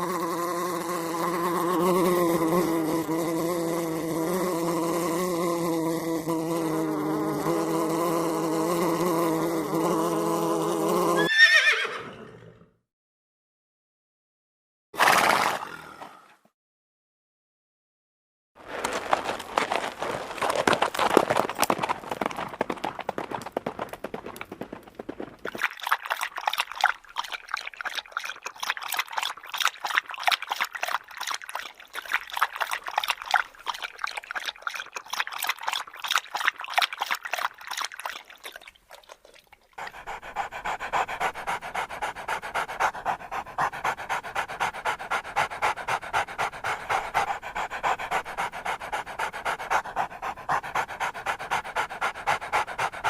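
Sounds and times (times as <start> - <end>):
dog panting: 39.8 - 53.0.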